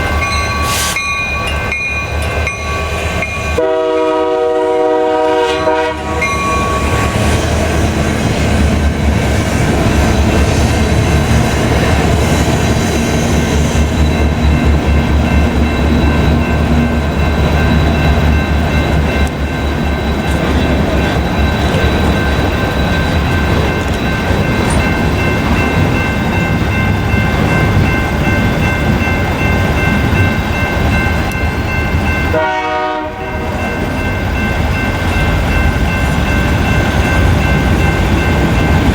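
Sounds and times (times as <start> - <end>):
rail cars rolling past: 0.0 - 38.9
train horn blast: 3.6 - 7.1, 32.3 - 33.6.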